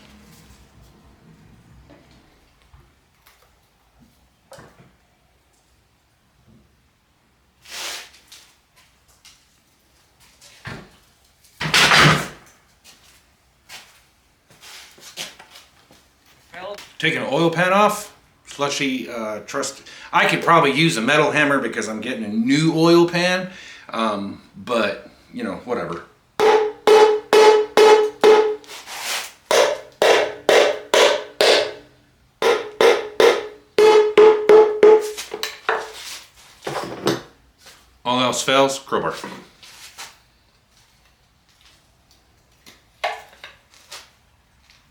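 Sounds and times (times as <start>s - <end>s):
mallet striking engine oil pan: 26.4s - 28.7s, 29.5s - 31.8s, 32.4s - 35.2s.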